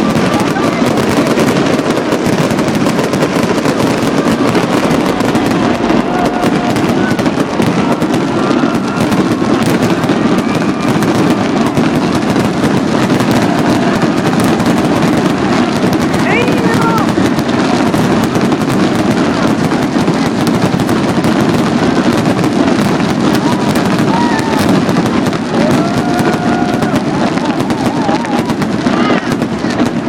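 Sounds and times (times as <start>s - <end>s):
fireworks bangs and crackling: 0.0s - 30.0s.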